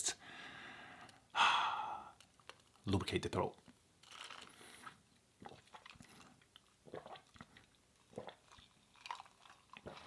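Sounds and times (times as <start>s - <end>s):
person drinking and swallowing: 4.1s - 10.0s.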